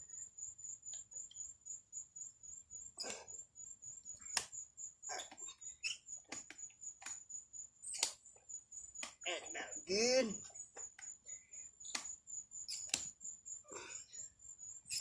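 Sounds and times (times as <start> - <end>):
strap squeaking: 5.0 - 7.2, 11.8 - 13.2.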